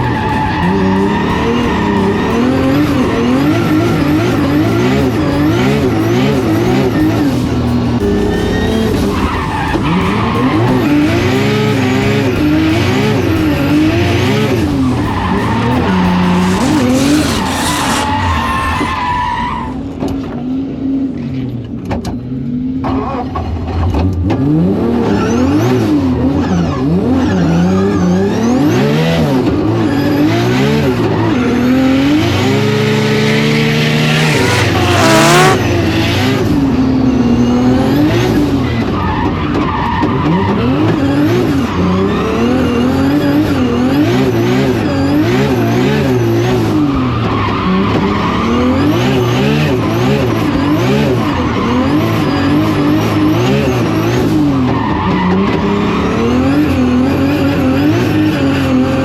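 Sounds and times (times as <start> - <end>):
car engine revving hard: 0.0 - 20.8, 22.8 - 59.0
tyres squealing: 14.2 - 20.1, 31.0 - 35.7.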